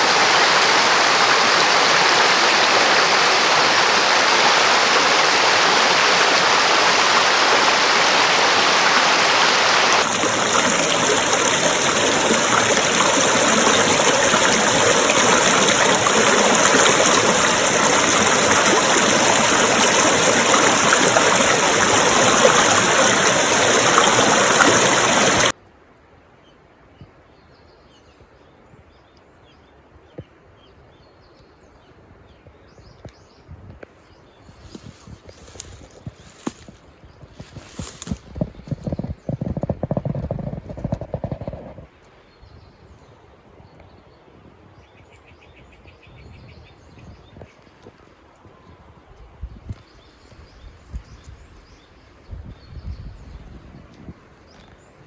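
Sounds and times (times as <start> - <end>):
rush of flowing water: 0.0 - 25.6, 34.7 - 36.8, 37.4 - 41.9.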